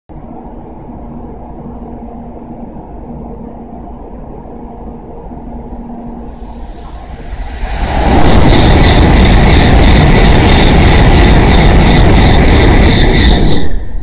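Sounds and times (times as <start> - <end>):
high-speed train rumbling: 0.1 - 14.0
train rushing hiss: 6.2 - 14.0.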